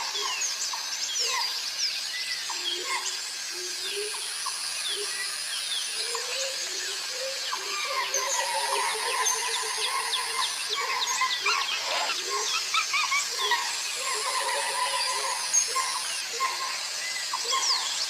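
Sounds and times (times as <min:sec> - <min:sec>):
birds chirping and calling: 0:00.0 - 0:18.0
warbling lower bird calls: 0:06.0 - 0:18.0.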